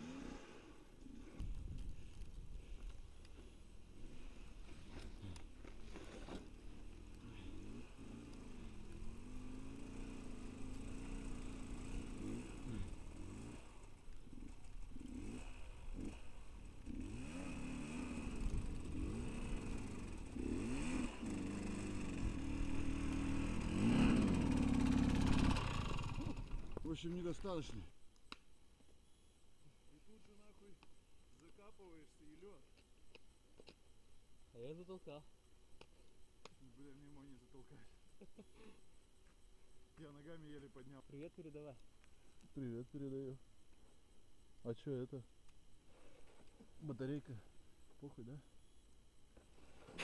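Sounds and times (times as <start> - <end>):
vehicle engine revving: 0.0 - 0.7, 6.4 - 26.7.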